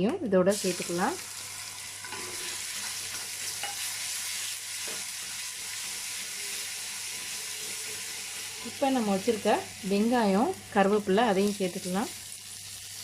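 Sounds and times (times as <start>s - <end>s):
paste sizzling in hot oil: 0.5s - 13.0s
spoon scraping a pan: 2.0s - 4.1s.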